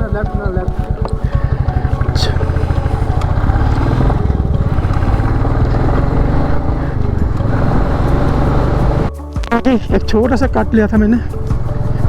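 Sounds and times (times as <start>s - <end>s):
motorcycle engine running: 0.6s - 9.1s.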